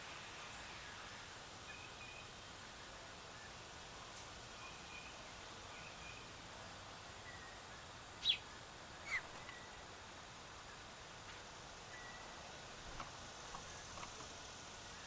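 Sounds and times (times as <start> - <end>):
outdoor background hiss: 0.0 - 15.0
sharp downward bird calls: 8.2 - 8.4
faint thin bird chirps: 8.2 - 9.7.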